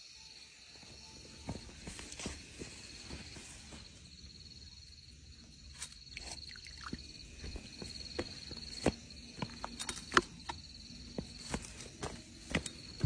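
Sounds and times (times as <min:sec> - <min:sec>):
insect trilling: 0:04.1 - 0:09.5.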